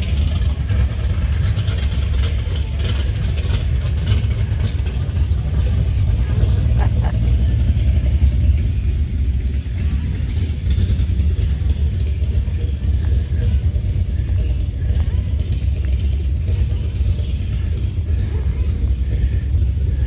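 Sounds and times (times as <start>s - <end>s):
car engines rumbling: 0.0s - 20.0s
faint voices: 0.0s - 20.0s.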